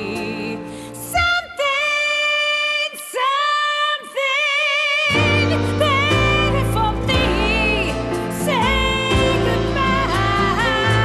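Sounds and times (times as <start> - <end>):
woman singing a ballad: 0.0 - 11.0
band accompaniment: 5.1 - 11.0.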